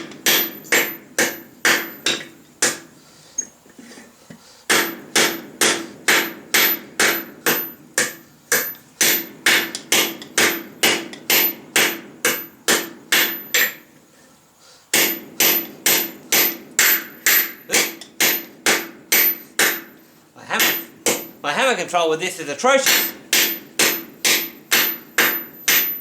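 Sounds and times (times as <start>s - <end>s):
hammer ringing on steel anvil: 20.6s - 21.3s, 22.9s - 26.0s.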